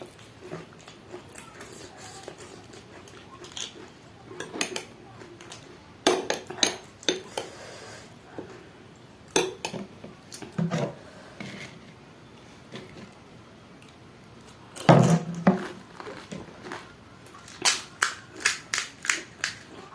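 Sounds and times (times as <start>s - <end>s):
cutlery clinking against dishes: 4.4s - 4.9s, 5.5s - 7.5s, 9.3s - 9.9s.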